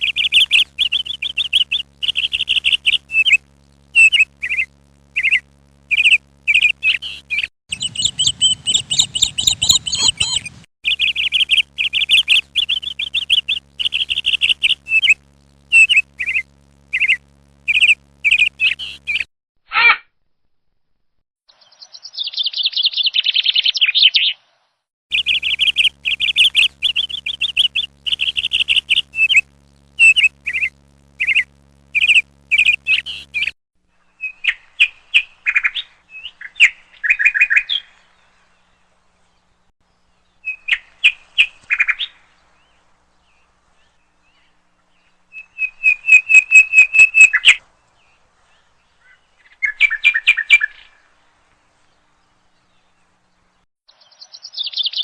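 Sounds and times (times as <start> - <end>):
faint low hum: 0.0 - 19.3, 25.1 - 50.1
bird chirping trilled notes: 4.0 - 19.3, 25.1 - 33.5.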